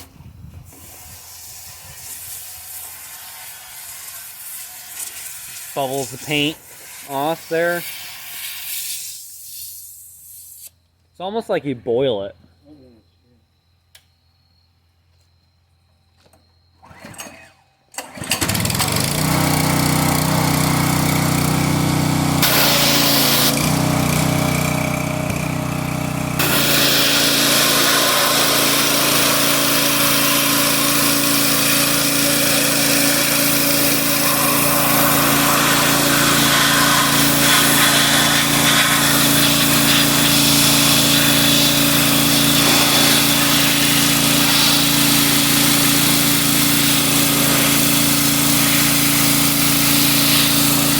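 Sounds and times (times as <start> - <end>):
small engine-driven machine running: 16.8 - 50.9.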